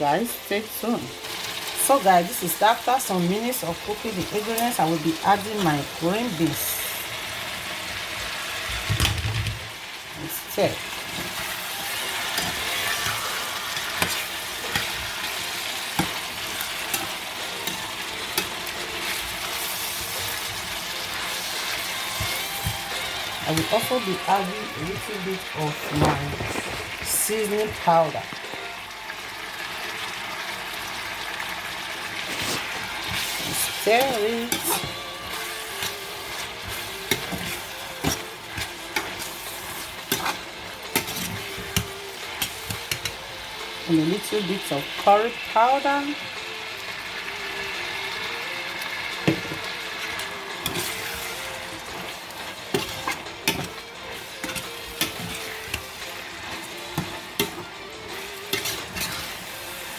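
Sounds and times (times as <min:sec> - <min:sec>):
vegetables sizzling in oil: 0:00.0 - 0:59.9.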